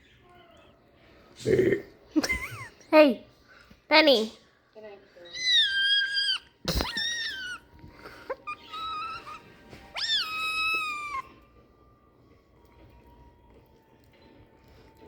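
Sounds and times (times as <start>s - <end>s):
kitten meowing: 5.3s - 7.7s, 8.4s - 11.4s.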